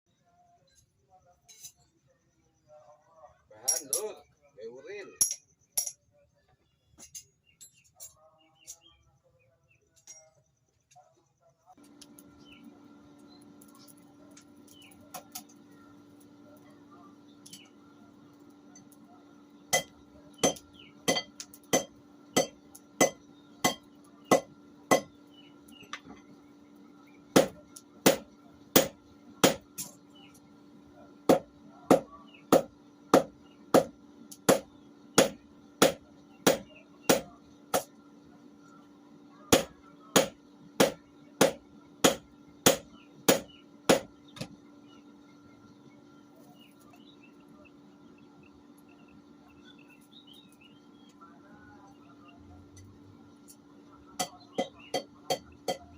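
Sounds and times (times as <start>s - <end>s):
faint steady hum: 0.1s - 55.9s
hammer ringing on anvil: 19.7s - 25.1s.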